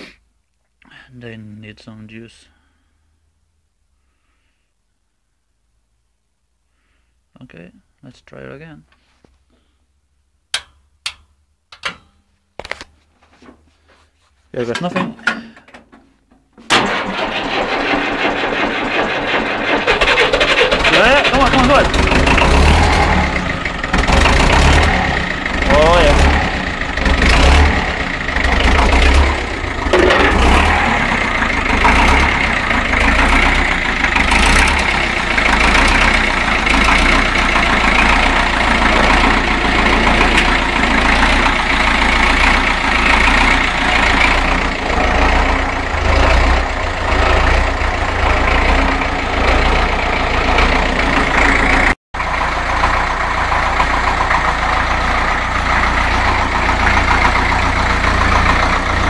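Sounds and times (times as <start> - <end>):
tractor diesel engine running: 14.6 - 59.0.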